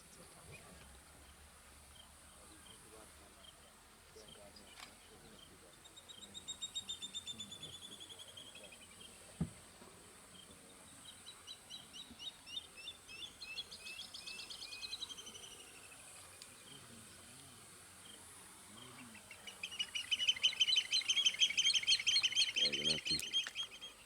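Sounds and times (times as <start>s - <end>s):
birds chirping: 10.4s - 17.4s, 18.0s - 24.0s
birds chattering: 18.2s - 24.0s.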